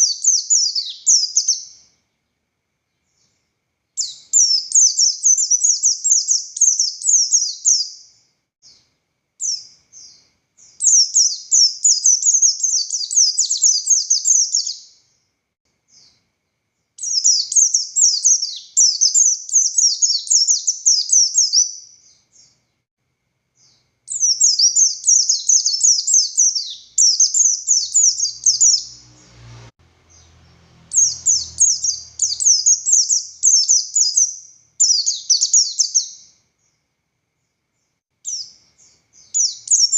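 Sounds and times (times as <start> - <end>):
bird singing rapid chattering notes: 0.0 - 1.8, 4.0 - 8.0, 9.4 - 15.0, 17.0 - 22.6, 23.6 - 29.0, 30.0 - 36.3, 38.2 - 39.9.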